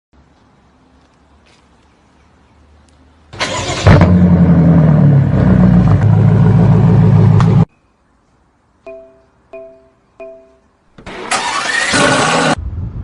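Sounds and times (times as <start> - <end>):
car engine cranking and running: 3.4 - 7.6, 11.0 - 12.6.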